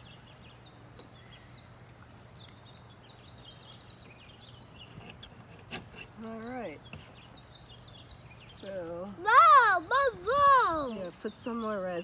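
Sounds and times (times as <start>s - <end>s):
birds chirping faintly: 0.0s - 12.0s.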